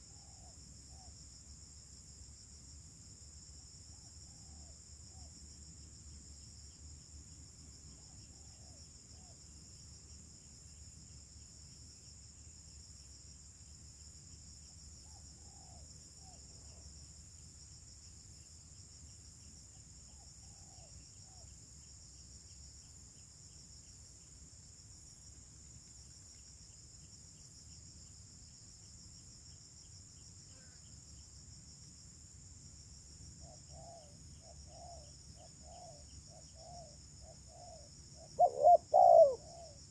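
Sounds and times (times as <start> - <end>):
insect chirring: 33.2 - 39.9
dove cooing: 37.5 - 39.8.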